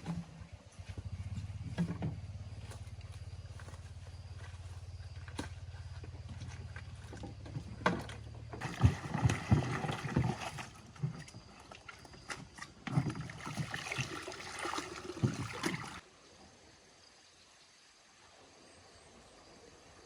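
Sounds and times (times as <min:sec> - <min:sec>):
water splashing and sloshing: 0:01.7 - 0:16.0.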